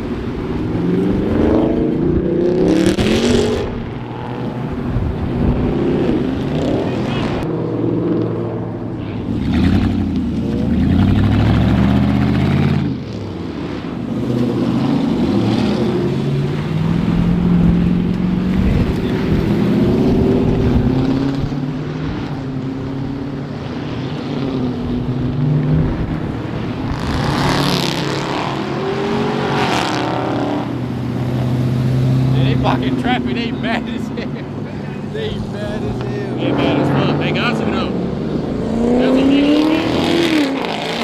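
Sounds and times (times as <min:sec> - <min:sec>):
car engines revving: 0:00.0 - 0:41.0.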